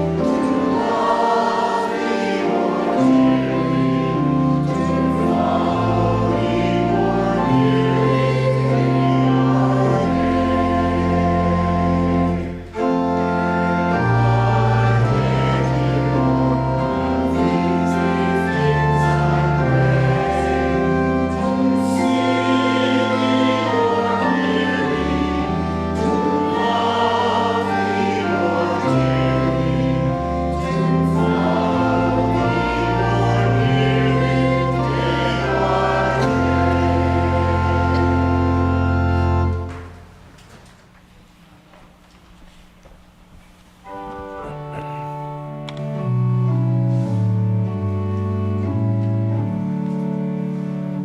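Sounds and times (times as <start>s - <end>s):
choir singing a hymn: 0.0s - 39.9s
organ with held bass notes: 0.0s - 40.1s, 43.8s - 51.0s.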